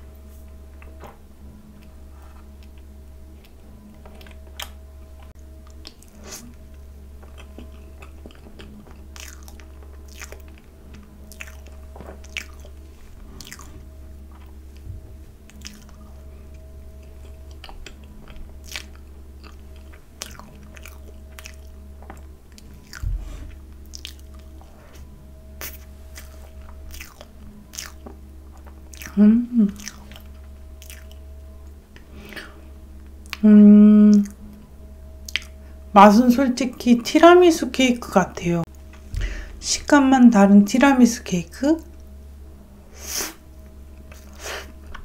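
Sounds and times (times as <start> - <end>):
steady low hum: 0.0 - 45.0
wet chewing: 0.8 - 33.4, 34.1 - 35.6
lip smacks and clicks: 35.3 - 35.6.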